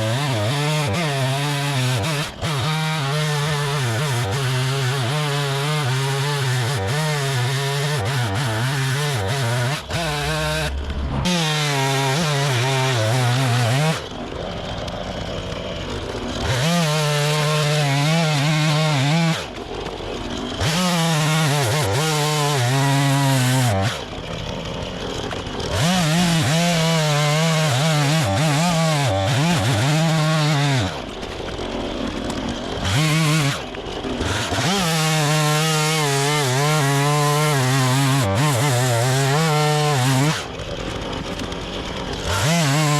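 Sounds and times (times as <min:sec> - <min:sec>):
small gasoline engine cutting wood: 0:00.0 - 0:42.9.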